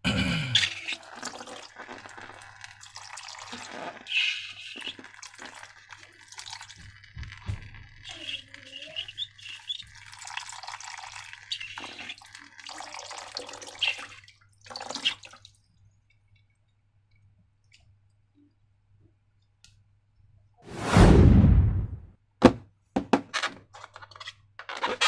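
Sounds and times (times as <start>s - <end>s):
rubbery squeak: 3.5s - 5.1s, 7.9s - 10.0s, 23.3s - 25.0s.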